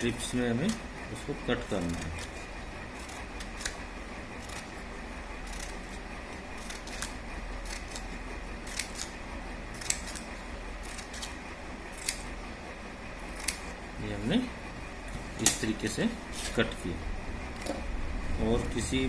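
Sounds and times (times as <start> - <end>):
scissors snipping paper: 1.6 - 4.8, 5.4 - 12.4, 13.2 - 13.8.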